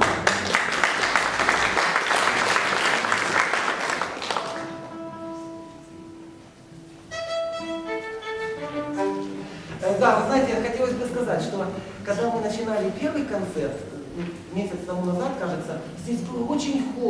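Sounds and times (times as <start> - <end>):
audience applauding: 0.0 - 5.1
violin notes: 4.6 - 10.0.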